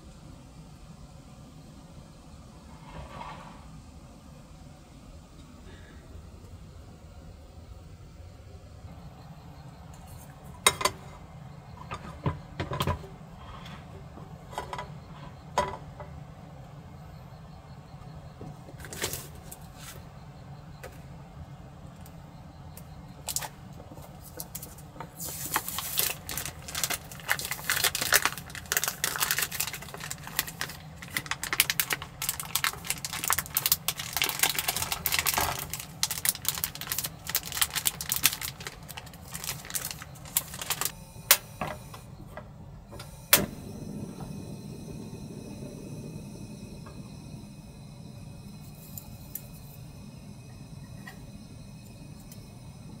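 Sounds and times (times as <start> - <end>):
steady low rumble: 24.8 - 53.0.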